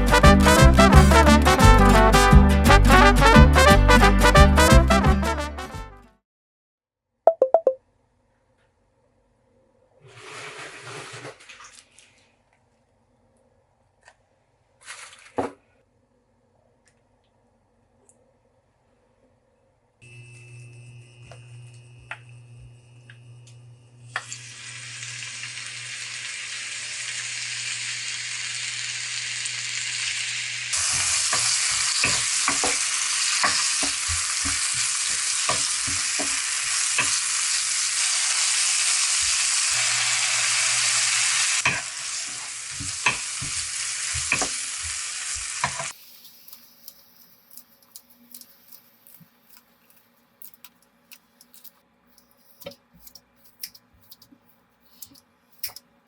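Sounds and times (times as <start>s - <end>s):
spatula scraping a pan: 10.0s - 11.6s
food sizzling in a pan: 24.1s - 50.0s.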